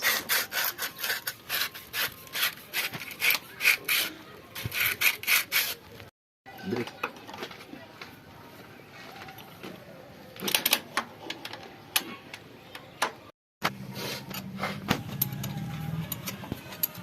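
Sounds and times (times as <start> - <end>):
metallic tool clicks and knocks: 14.3 - 17.0.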